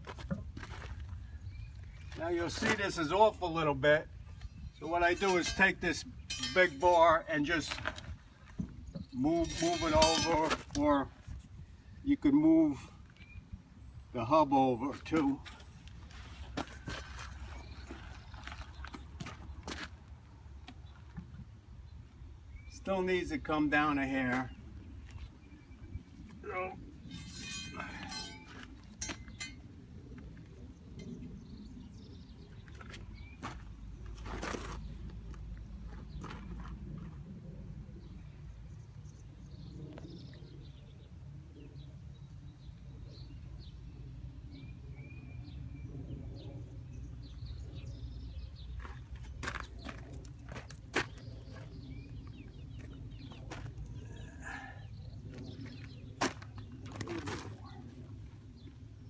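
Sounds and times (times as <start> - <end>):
birds chirping: 0.8 - 59.0
metallic clinks and knocks: 5.2 - 7.1, 27.1 - 29.6.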